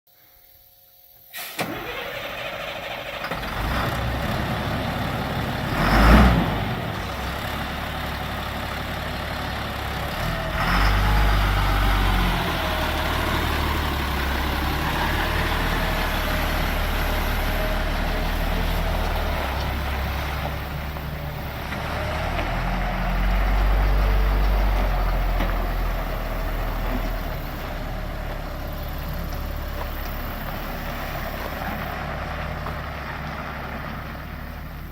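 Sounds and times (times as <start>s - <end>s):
air hiss: 1.2s - 1.8s
diesel truck engine revving: 1.6s - 34.9s.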